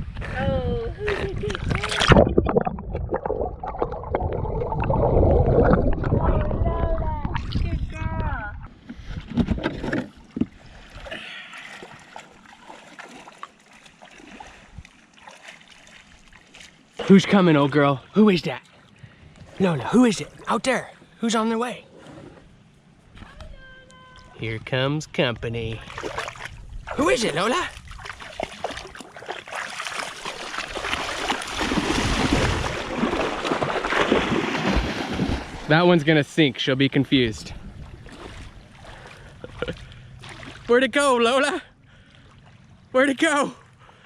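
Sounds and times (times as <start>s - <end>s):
wind on microphone: 0.0s - 9.8s
shallow water splashing: 1.1s - 7.9s, 8.7s - 21.2s, 25.7s - 36.0s, 37.4s - 40.8s.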